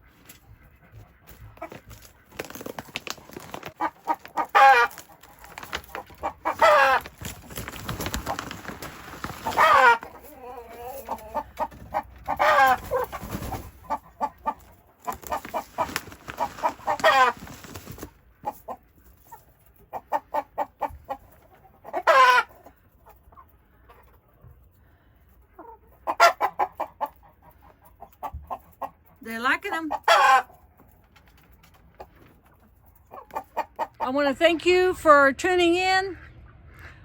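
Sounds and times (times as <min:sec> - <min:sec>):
chickens clucking: 0:00.0 - 0:34.7
chicken squawks: 0:03.8 - 0:05.4, 0:06.0 - 0:07.1, 0:09.4 - 0:17.4, 0:19.9 - 0:22.7, 0:29.9 - 0:30.5.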